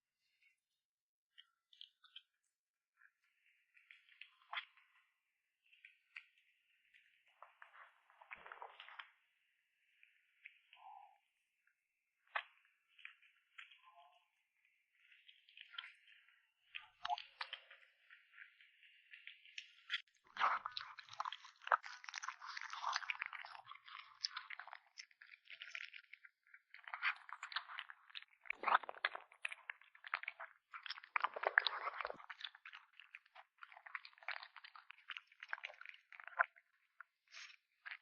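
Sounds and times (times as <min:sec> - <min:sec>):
kitten crunching food: 0:20.3 - 0:38.0.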